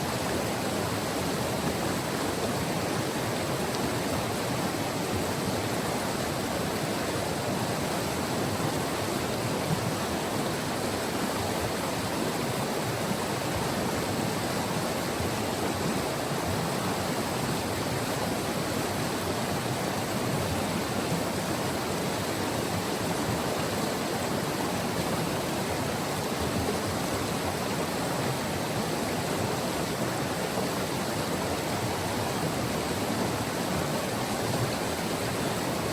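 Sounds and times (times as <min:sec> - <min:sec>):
river water rushing: 0:00.0 - 0:35.9.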